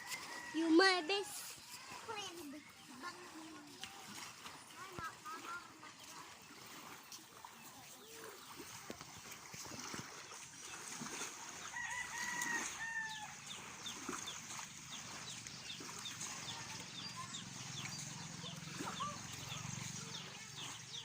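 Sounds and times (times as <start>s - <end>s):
rooster crowing: 11.7s - 13.4s.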